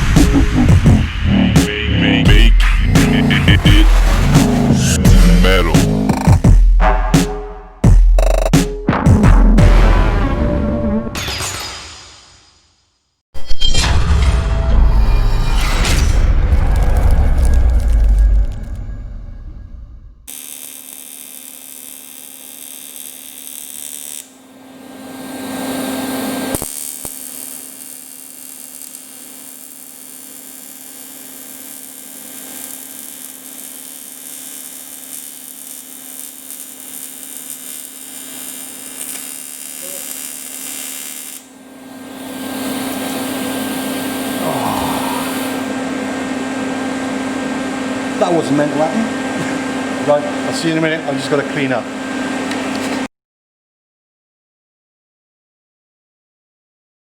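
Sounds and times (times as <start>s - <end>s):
machine humming and hissing: 0.0s - 6.4s, 20.3s - 51.4s.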